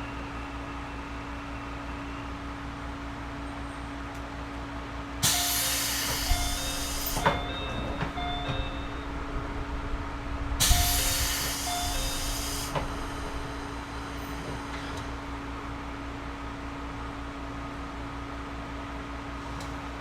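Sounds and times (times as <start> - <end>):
compressed air hissing: 5.2 - 7.2, 10.6 - 13.7
electric train equipment humming: 5.2 - 19.2.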